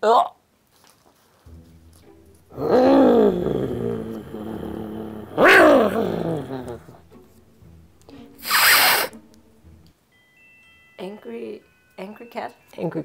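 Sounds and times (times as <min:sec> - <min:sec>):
person imitating angry cat: 0:02.6 - 0:07.0
faint chime tones: 0:10.0 - 0:13.0.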